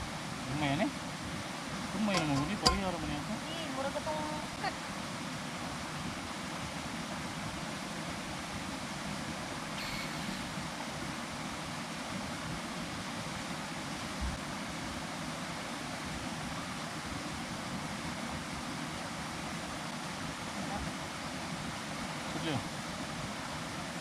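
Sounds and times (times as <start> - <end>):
waterfall rushing: 9.6 - 12.0.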